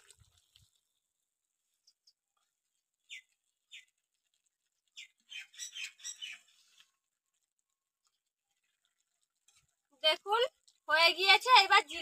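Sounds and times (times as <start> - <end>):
small bird chirping: 3.0 - 4.0, 4.8 - 6.9.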